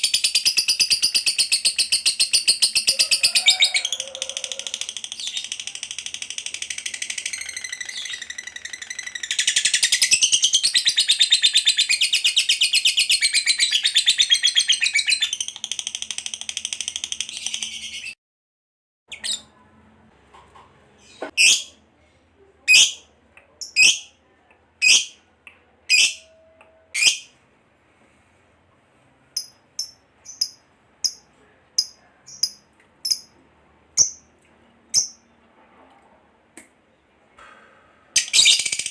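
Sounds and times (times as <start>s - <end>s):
bird chirps: 5.1s - 15.6s
lovebird chattering trill: 29.4s - 31.2s, 31.8s - 33.3s.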